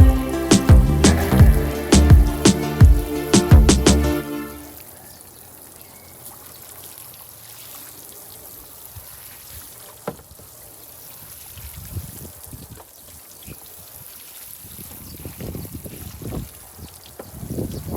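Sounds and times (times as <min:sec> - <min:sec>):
water trickling: 0:04.4 - 0:17.9.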